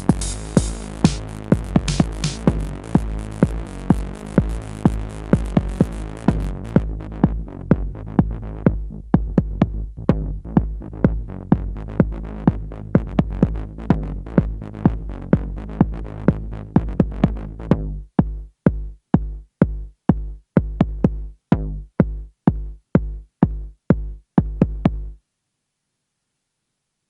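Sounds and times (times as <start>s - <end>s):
synth bassline: 0.0s - 18.4s
acid techno music: 0.0s - 21.3s
kick drum: 0.0s - 25.2s.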